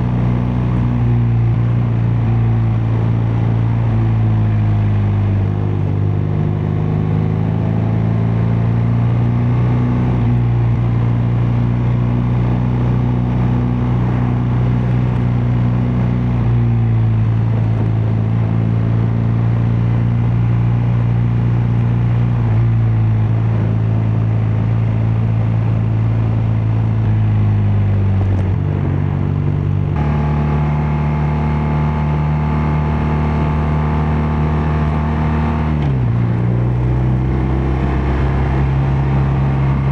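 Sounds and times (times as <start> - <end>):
motorcycle engine cruising: 12.3 - 39.9.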